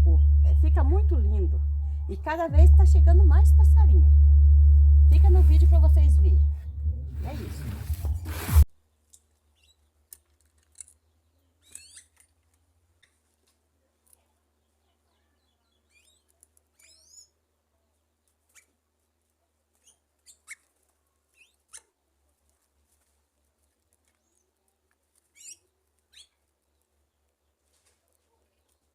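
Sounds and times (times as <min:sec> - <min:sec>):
faint bird chirps: 0:11.3 - 0:12.2, 0:14.6 - 0:17.4, 0:25.3 - 0:26.4.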